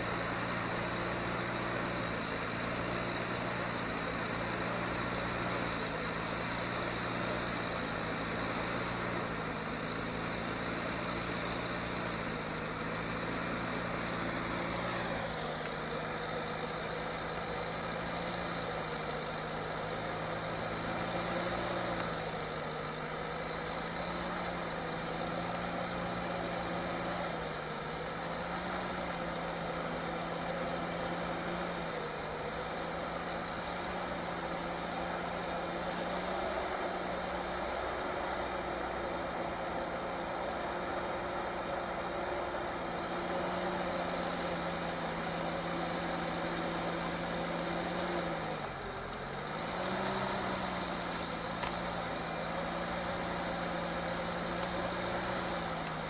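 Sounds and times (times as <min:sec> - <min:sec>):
heavy vehicle engine running: 0:00.0 - 0:56.0.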